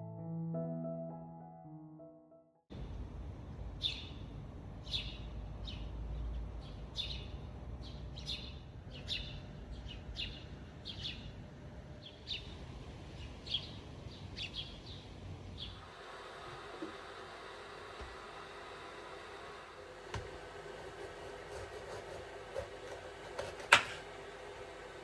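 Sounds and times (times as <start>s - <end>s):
low rumble of outdoor noise: 2.7s - 19.9s.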